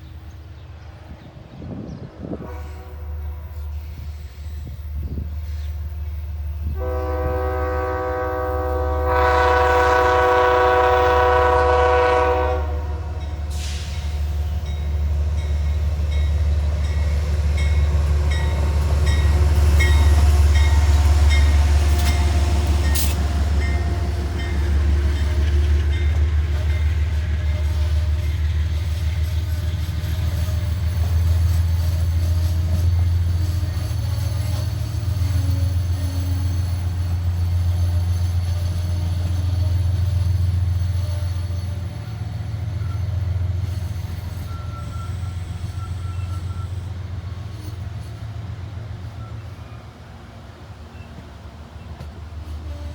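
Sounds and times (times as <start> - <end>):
locomotive engine rumbling: 0.0 - 52.9
train horn chord: 2.3 - 4.0, 6.7 - 13.7.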